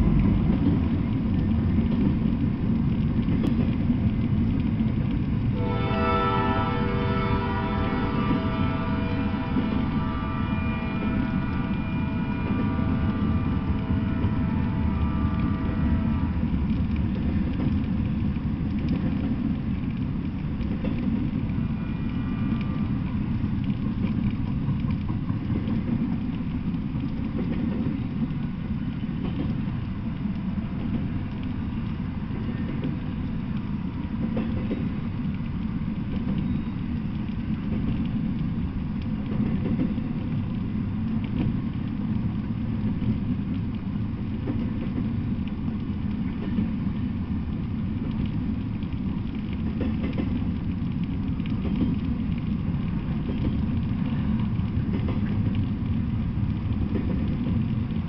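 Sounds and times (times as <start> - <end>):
steel wheels rumbling on rail: 0.0 - 58.0.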